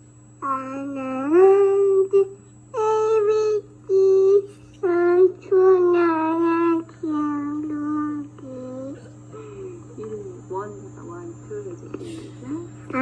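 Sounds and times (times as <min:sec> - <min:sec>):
steady low hum: 0:00.0 - 0:13.0
child singing high notes: 0:00.4 - 0:09.0.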